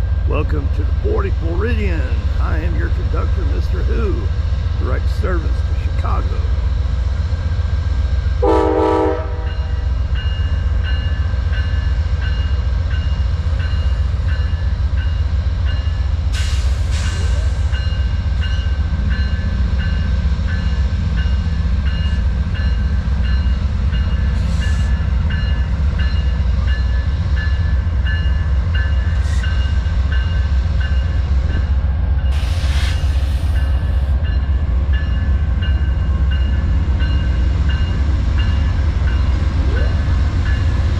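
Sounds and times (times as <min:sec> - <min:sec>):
diesel locomotive rumbling: 0:00.0 - 0:40.9
train horn: 0:08.4 - 0:09.8.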